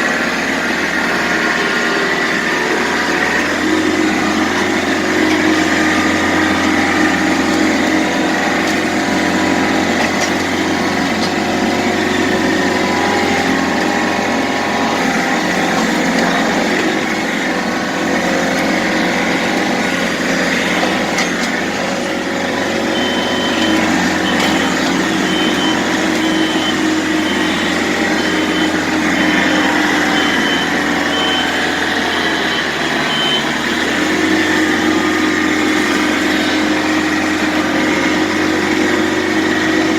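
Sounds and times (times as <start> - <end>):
diesel engine running: 0.0 - 39.9
backup alarm beeping: 22.9 - 33.8.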